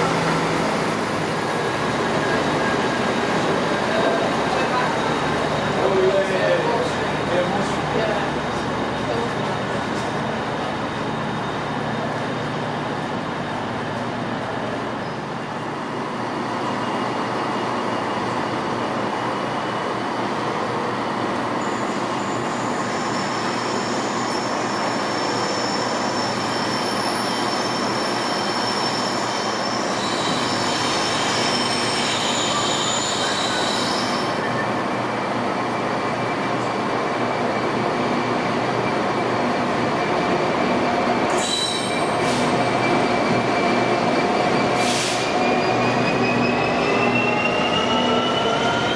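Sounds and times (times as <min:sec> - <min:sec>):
train moving: 0:00.0 - 0:48.9
wheel squeal: 0:21.6 - 0:34.7, 0:41.3 - 0:43.1.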